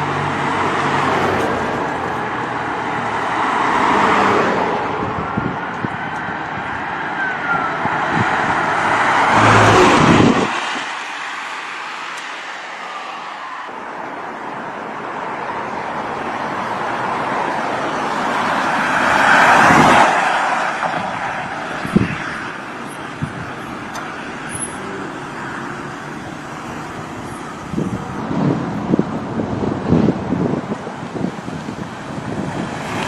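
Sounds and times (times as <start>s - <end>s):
car passing: 0.0s - 33.0s.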